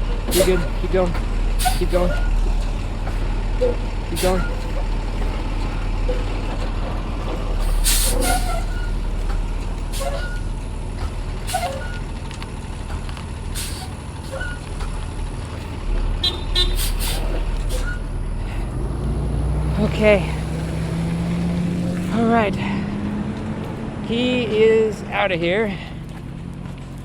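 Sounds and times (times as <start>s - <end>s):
truck engine running: 0.0s - 27.0s
air brake hisses: 7.6s - 8.8s, 16.7s - 17.9s.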